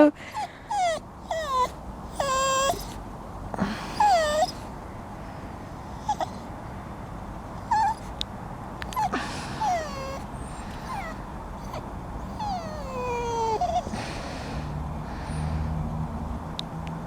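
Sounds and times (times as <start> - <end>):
dog whining and whimpering: 0.3 - 3.0, 3.9 - 4.7, 6.0 - 6.4, 7.6 - 8.1, 8.9 - 14.0.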